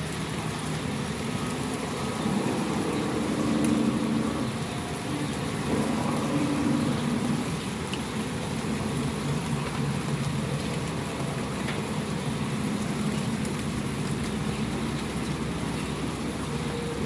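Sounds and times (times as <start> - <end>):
steady soft rain: 0.0 - 17.0
low rumble: 1.6 - 9.6.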